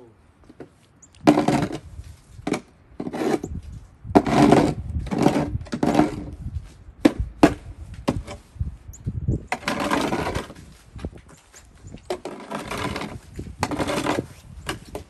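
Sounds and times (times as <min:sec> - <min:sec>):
snow shovel scraping snow: 0:01.3 - 0:02.3, 0:03.0 - 0:03.6, 0:04.2 - 0:06.4, 0:09.5 - 0:11.5, 0:12.1 - 0:15.0.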